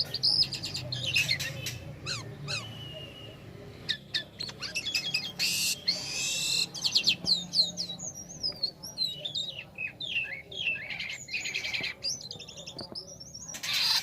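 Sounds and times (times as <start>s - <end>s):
starling singing: 0.0s - 14.0s
harsh rasping bird call: 3.9s - 7.2s, 13.5s - 14.0s.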